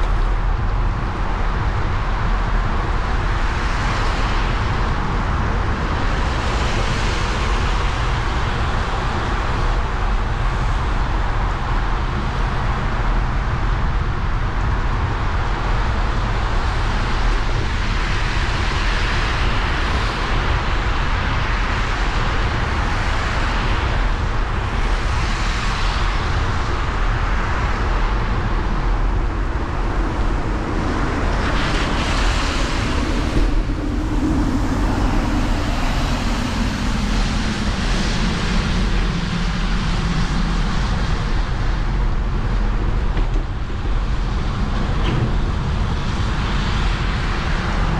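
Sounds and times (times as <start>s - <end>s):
wind: 0.0s - 47.9s
low rumble: 23.6s - 47.9s
passing vehicle engine: 29.7s - 40.3s.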